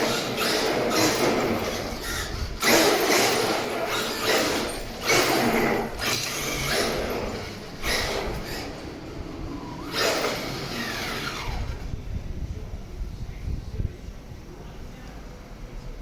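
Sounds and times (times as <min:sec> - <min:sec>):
steering servo whirring: 0:00.0 - 0:12.3.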